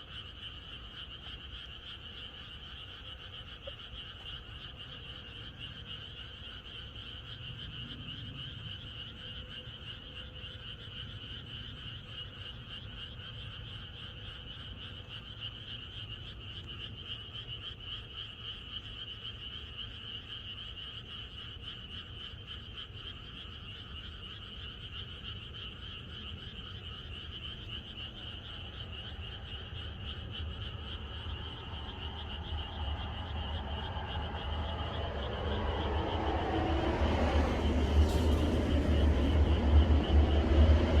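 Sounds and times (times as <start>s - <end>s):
frogs croaking in chorus: 0.0s - 41.0s
low rumble: 29.9s - 41.0s.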